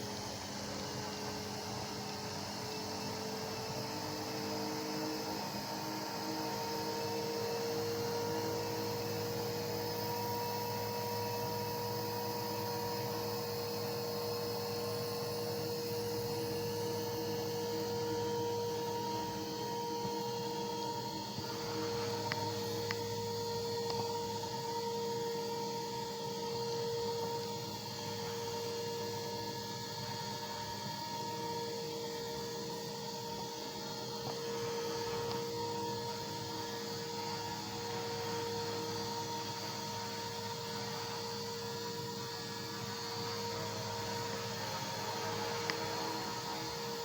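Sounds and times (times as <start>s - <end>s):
rc helicopter motor whine: 0.0s - 47.0s.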